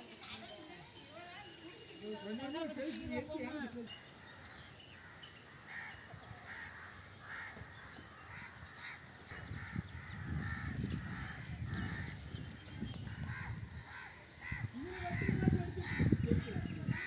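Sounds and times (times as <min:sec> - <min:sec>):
bird harsh calls: 0:03.4 - 0:17.0.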